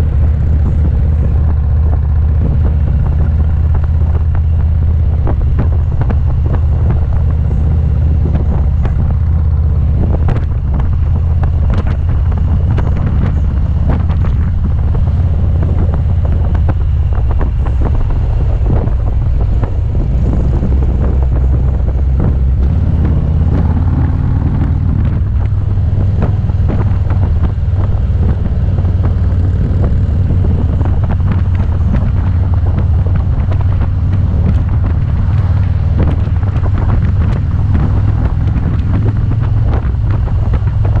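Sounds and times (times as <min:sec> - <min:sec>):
motorcycle engine running: 0:00.0 - 0:41.0
wind buffeting microphone: 0:00.0 - 0:41.0.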